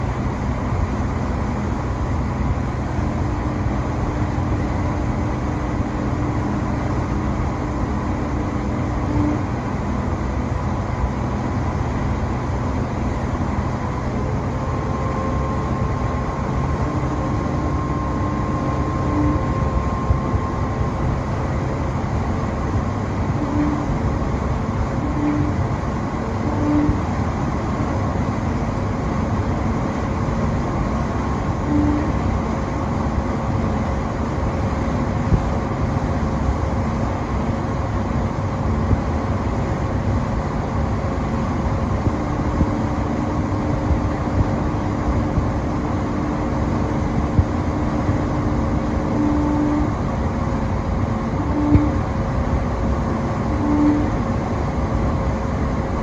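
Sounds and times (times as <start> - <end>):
low rumbling drone: 0.0 - 56.0
short tones: 14.1 - 21.0.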